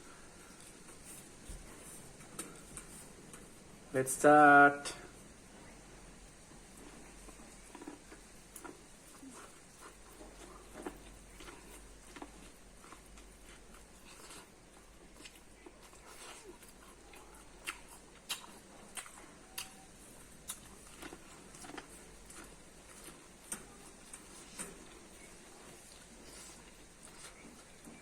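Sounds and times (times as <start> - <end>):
biting and chewing corn: 6.4 - 28.0.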